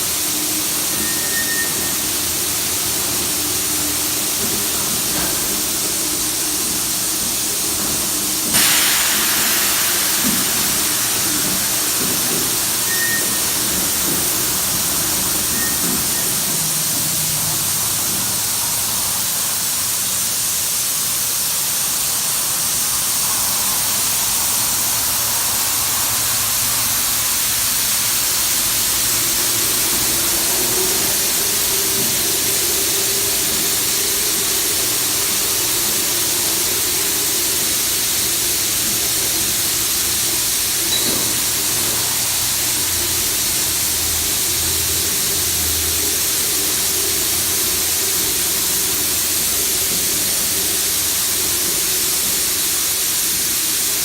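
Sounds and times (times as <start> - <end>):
high-pressure water jets spraying: 0.0 - 54.0.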